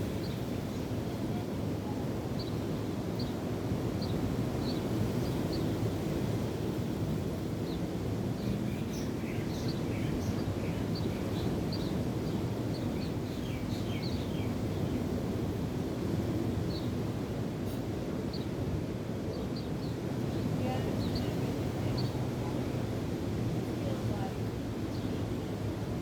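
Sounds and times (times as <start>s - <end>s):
small birds chirping: 0.0s - 6.1s, 7.5s - 15.4s, 16.3s - 17.2s, 18.2s - 22.9s
waves: 0.0s - 26.0s
wind: 0.0s - 26.0s.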